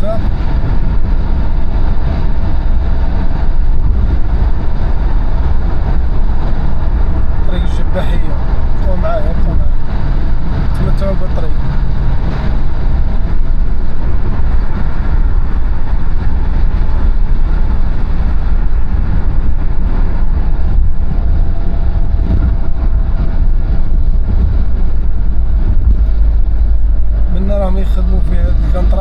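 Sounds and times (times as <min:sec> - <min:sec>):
car road and engine rumble: 0:00.0 - 0:29.0.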